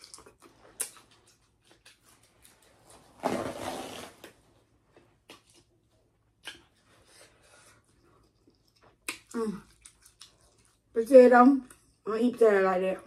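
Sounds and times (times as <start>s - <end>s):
wet mouth clicks and smacks: 0.0s - 2.0s, 6.4s - 6.8s, 8.2s - 10.7s
slurp or rustle: 2.9s - 4.4s.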